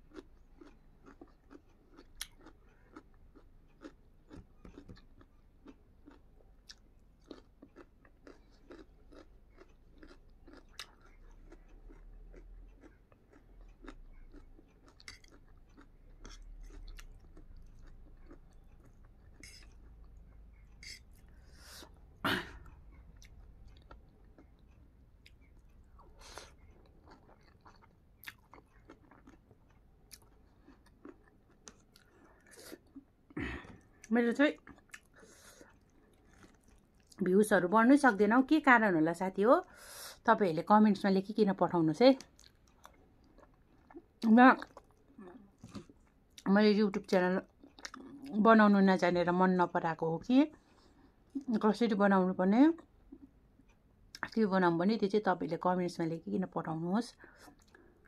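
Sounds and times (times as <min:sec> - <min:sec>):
chewing crunchy food: 0:00.0 - 0:37.3, 0:42.2 - 0:48.6, 0:50.5 - 0:51.5, 0:57.1 - 0:58.0.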